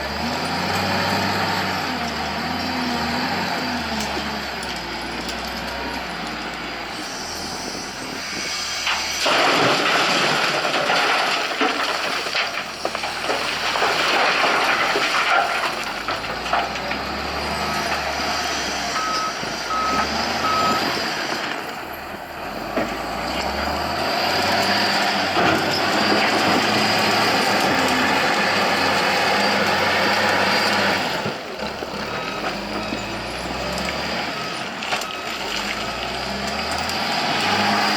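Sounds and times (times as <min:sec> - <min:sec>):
heavy diesel machinery working: 0:00.0 - 0:37.9
reversing alarm beeps: 0:18.9 - 0:21.0.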